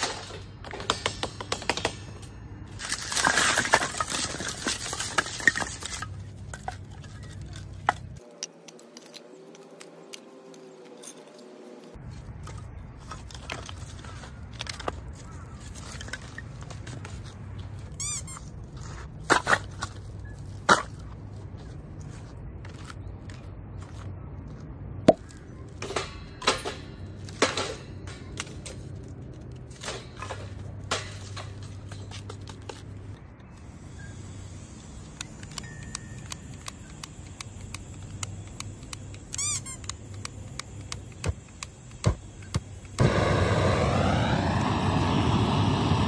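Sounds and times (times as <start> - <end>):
scattered clicks and knocks: 0.0 - 2.4
short squeak: 17.9 - 18.5, 39.3 - 39.9
steady low hum: 31.4 - 46.0.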